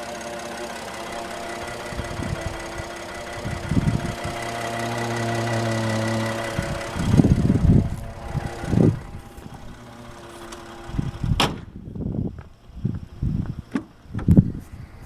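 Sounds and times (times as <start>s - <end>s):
engine idling faintly: 0.0s - 11.4s.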